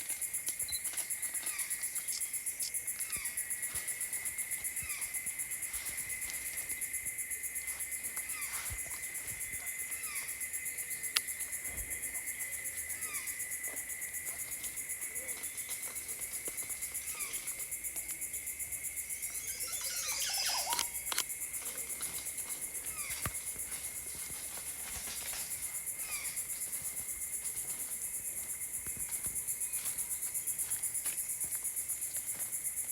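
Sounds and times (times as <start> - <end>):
high pulsing insect trill: 0.0 - 32.9
low insect drone: 0.1 - 32.8
downward-sliding calls: 19.3 - 21.0.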